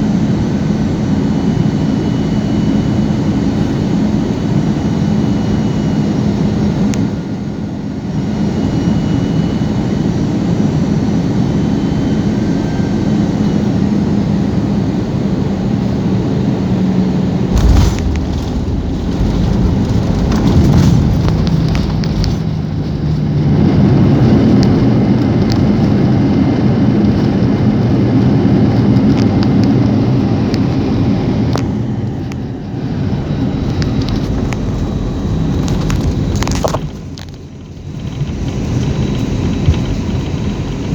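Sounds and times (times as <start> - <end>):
airliner engine and airflow noise: 0.0 - 40.9
rushing of plane slowing: 17.1 - 26.2, 30.3 - 40.9
landing thump: 17.5 - 22.6.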